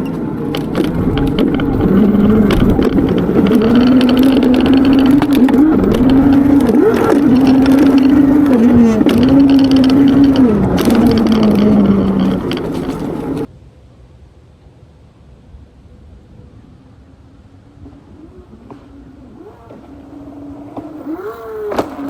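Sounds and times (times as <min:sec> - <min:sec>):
electric motor whining: 0:00.0 - 0:13.5.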